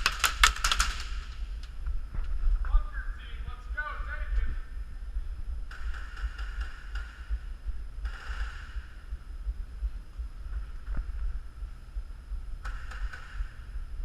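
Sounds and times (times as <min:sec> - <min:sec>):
thumping rumble on microphone: 0:01.7 - 0:02.9, 0:05.0 - 0:14.0.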